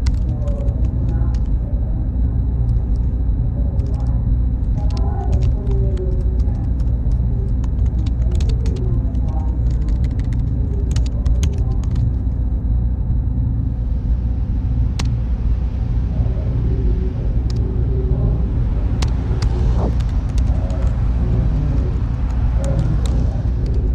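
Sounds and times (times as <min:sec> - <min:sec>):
faint murmuring voices: 0:00.0 - 0:12.4, 0:15.9 - 0:23.9
cooling fans rumbling: 0:00.0 - 0:23.9
small clicks: 0:03.8 - 0:12.2.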